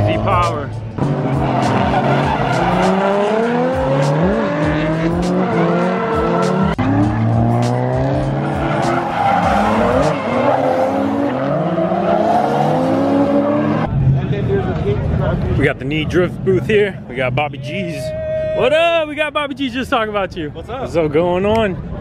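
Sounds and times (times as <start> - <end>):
tires squealing: 0.0 - 14.0
car engines revving hard: 0.0 - 14.4.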